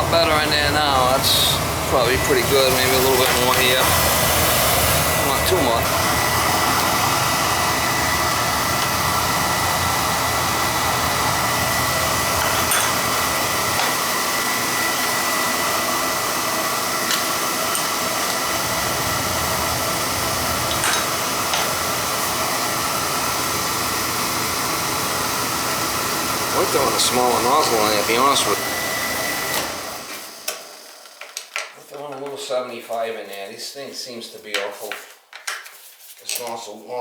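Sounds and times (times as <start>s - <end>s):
oil burner rushing: 0.0s - 31.4s.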